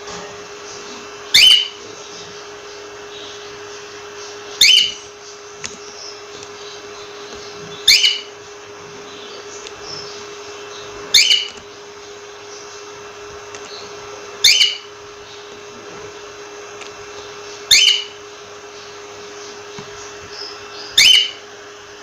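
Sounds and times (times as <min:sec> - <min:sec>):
steady hum and hiss: 0:00.0 - 0:22.0
cockatiel whistling: 0:01.2 - 0:01.8, 0:04.6 - 0:05.0, 0:07.7 - 0:08.3, 0:11.1 - 0:11.6, 0:14.4 - 0:14.9, 0:17.7 - 0:18.2, 0:20.8 - 0:21.4.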